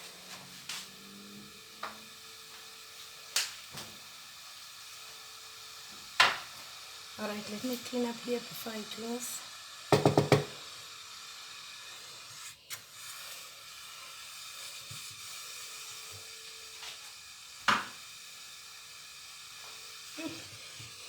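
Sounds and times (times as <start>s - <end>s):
porridge sizzling on a hot plate: 0.0s - 21.0s
sharp knock: 9.9s - 10.5s.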